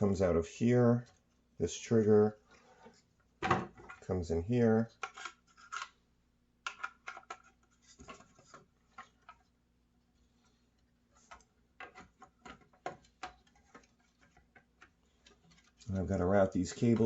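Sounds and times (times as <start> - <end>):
faint clicks and rubbing: 10.2 - 17.0.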